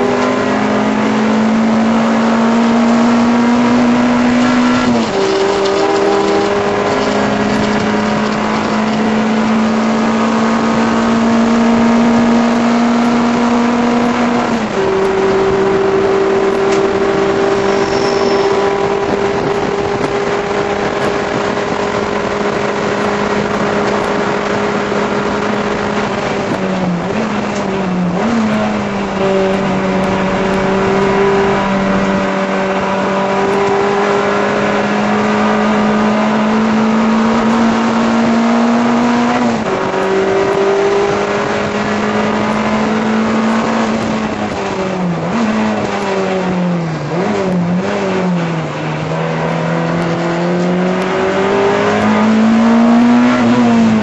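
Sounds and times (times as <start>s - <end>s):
race car engine at high revs: 0.0s - 54.0s.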